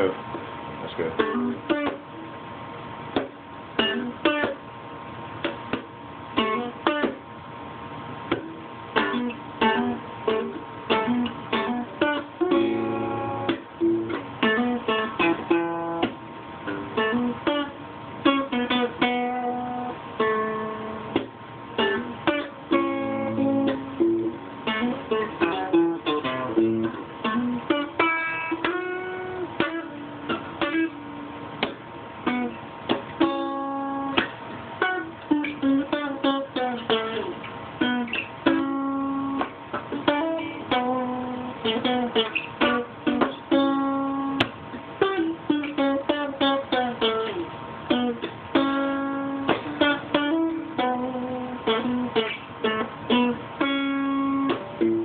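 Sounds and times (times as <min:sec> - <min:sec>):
solo guitar melody: 0:01.0 - 0:55.0.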